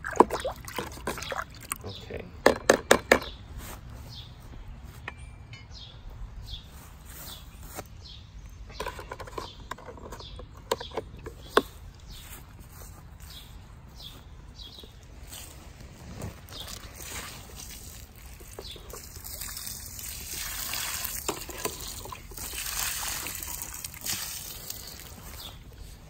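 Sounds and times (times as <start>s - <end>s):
sharp clicks and knocks: 2.4s - 3.4s, 8.7s - 11.8s.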